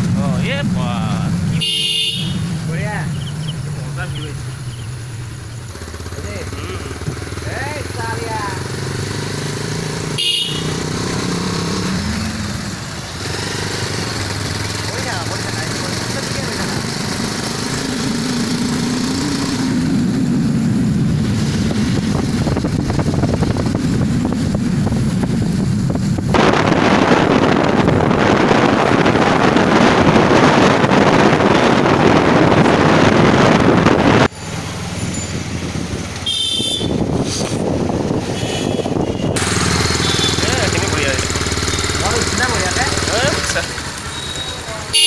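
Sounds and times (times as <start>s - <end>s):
motorcycle engine running: 0.0s - 45.0s
loud even rushing noise: 18.2s - 34.3s.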